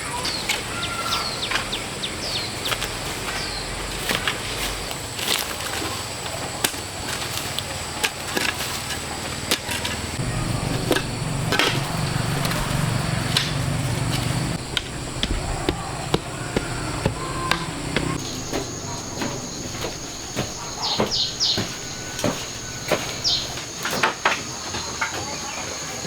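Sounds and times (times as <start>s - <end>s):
outdoor background noise: 0.0s - 26.0s
tool knocking and chopping: 14.6s - 23.6s.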